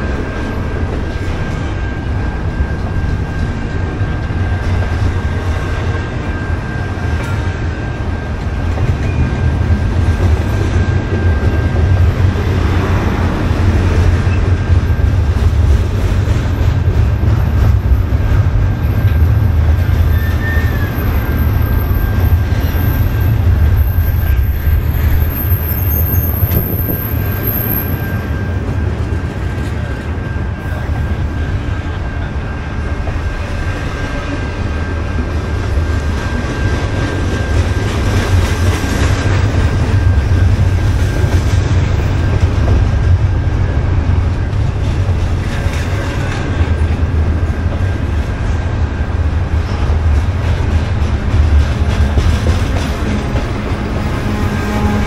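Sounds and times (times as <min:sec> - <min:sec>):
thin steady whine: 0:00.0 - 0:15.8
train rumbling on rails: 0:00.0 - 0:55.0.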